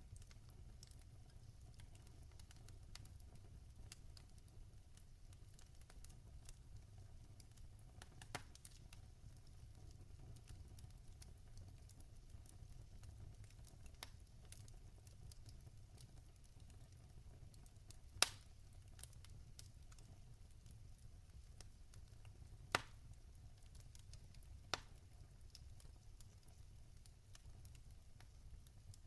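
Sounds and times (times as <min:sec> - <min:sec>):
logs crackling in fireplace: 0:00.0 - 0:29.0.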